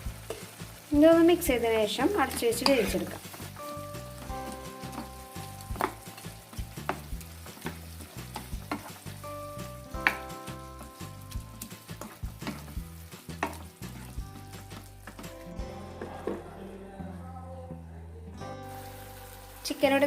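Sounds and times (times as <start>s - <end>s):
chicken sizzling in a pan: 0.0s - 16.4s, 18.6s - 20.0s
utensil knocking and scraping pan: 5.7s - 9.2s, 10.9s - 15.4s.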